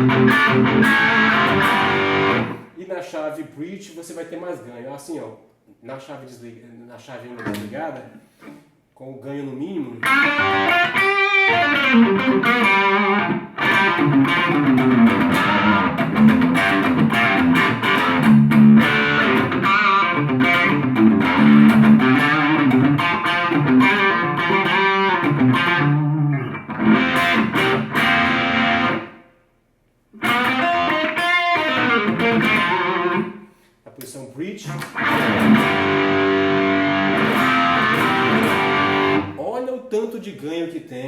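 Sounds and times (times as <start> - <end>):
overdriven electric guitar: 0.0 - 2.7, 10.0 - 29.2, 30.2 - 33.4, 34.7 - 39.4.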